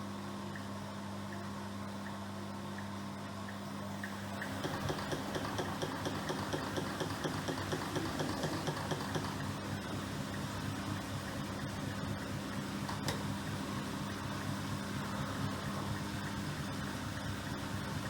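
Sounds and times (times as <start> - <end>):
washing machine motor hum: 0.5 - 18.0
rhythmic patter of turning drum: 4.4 - 10.0.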